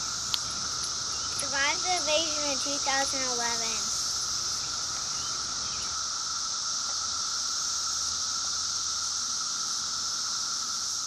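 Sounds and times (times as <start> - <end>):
cicadas droning: 0.0 - 11.0.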